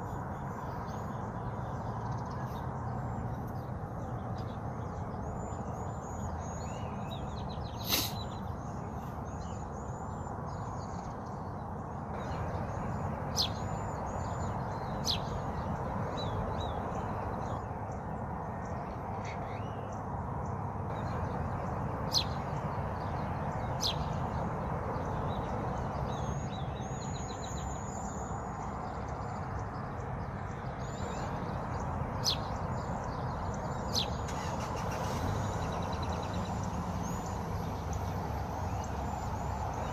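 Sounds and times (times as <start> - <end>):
sharp bird calls: 0.0 - 10.0, 30.8 - 39.9
small birds chirping: 0.0 - 39.9.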